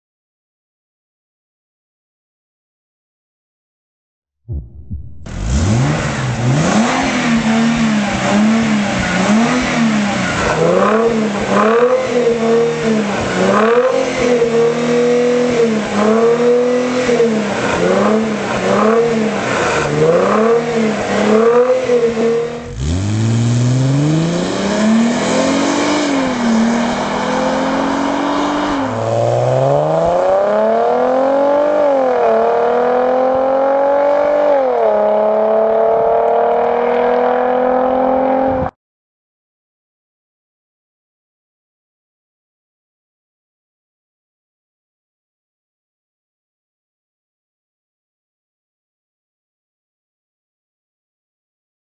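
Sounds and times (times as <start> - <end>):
car engine revving through exhaust: 4.5 - 38.7.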